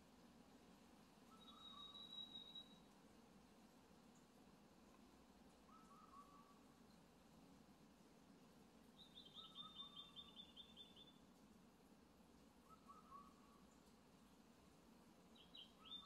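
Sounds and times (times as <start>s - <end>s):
bird lower short call: 1.3s - 2.9s, 5.7s - 6.6s, 9.1s - 11.1s, 12.7s - 13.6s.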